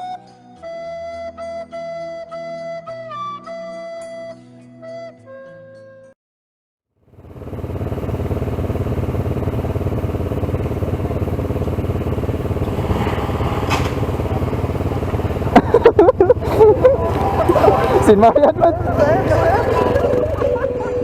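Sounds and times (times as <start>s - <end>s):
motorcycle engine running: 7.0s - 21.0s.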